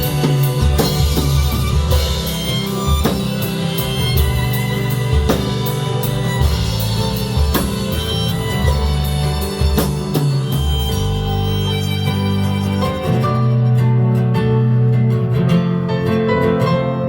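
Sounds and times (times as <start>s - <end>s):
sharp drum hits: 0.0s - 11.9s
live band playing pop-rock: 0.0s - 17.0s.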